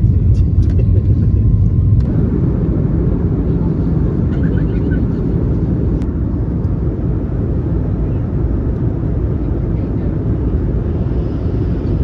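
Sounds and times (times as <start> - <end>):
vehicle rumble from inside: 0.0 - 12.0.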